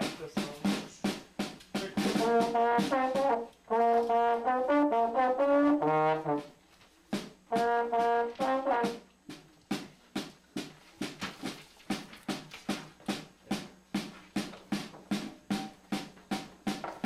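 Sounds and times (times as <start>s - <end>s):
drum hits: 0.0s - 4.2s, 7.2s - 17.0s
brass instrument playing held notes: 1.7s - 9.4s.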